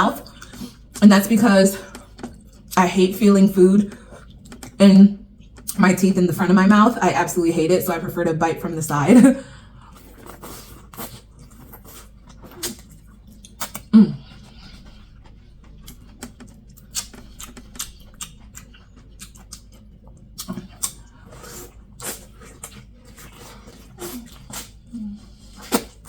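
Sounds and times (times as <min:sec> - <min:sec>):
chewing and lip smacking: 0:01.9 - 0:02.8, 0:03.9 - 0:05.8, 0:09.8 - 0:26.0.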